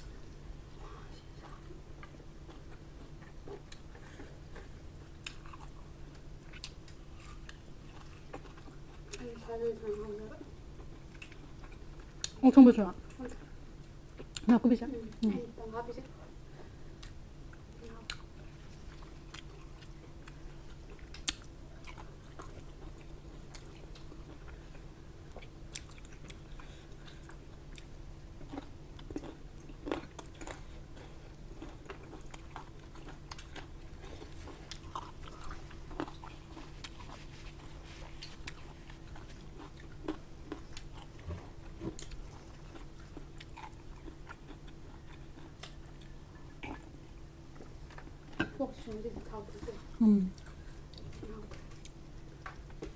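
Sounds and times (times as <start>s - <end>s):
faint low hum: 0.0s - 52.9s
close chewing: 0.3s - 12.4s, 16.6s - 52.9s
sharp mouth clicks and smacks: 21.1s - 21.5s.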